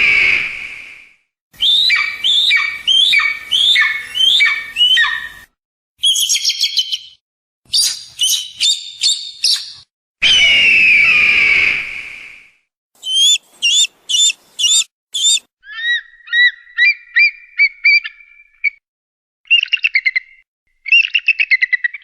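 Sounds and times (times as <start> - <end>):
eagle and hawk calls: 1.6 - 5.4, 13.0 - 18.2.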